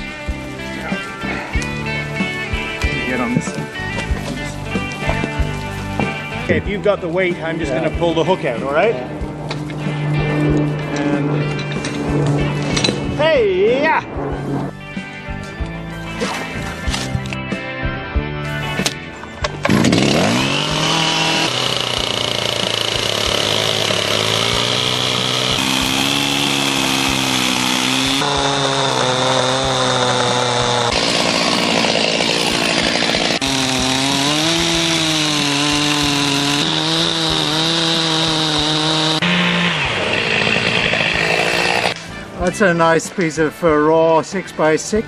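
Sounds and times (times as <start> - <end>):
chainsaw cutting log: 18.8 - 42.0.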